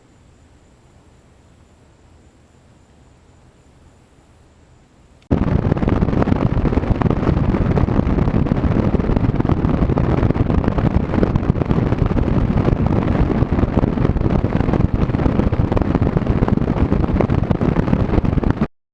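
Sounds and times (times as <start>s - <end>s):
boat running on water: 5.3s - 18.7s
wind buffeting microphone: 5.3s - 18.7s.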